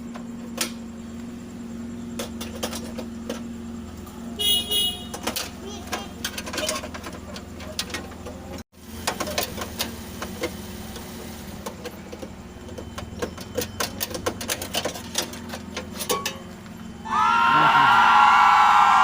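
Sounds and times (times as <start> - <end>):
hand tools clicking and tapping: 5.1 - 10.6, 11.6 - 16.7.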